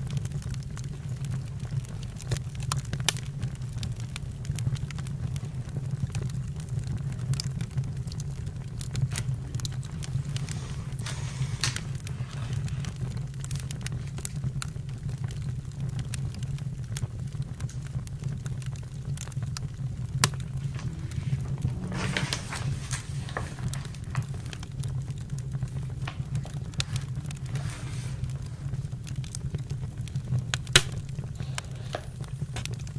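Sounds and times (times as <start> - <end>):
campfire crackling: 0.0 - 32.9
fire hissing: 0.0 - 32.9.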